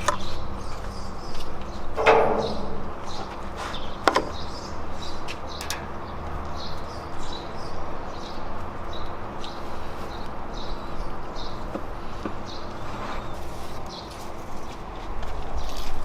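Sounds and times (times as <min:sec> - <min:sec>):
small birds chirping: 0:00.0 - 0:16.0
sharp click: 0:02.0 - 0:03.4.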